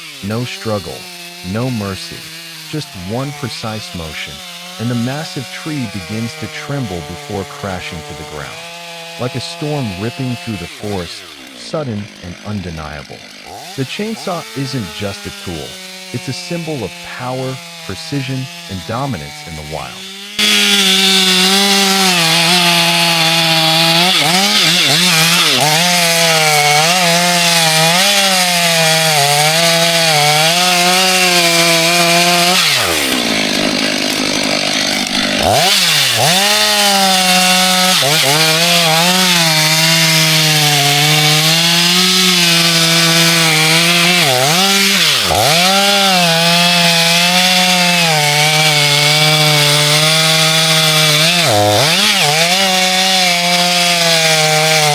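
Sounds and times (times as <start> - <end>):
chainsaw cutting tree trunk: 0.0 - 54.9.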